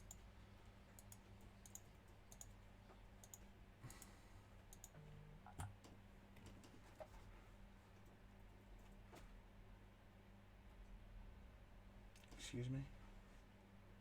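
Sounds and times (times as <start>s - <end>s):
faint computer clicks: 0.0s - 0.2s, 0.9s - 2.6s, 3.2s - 7.1s.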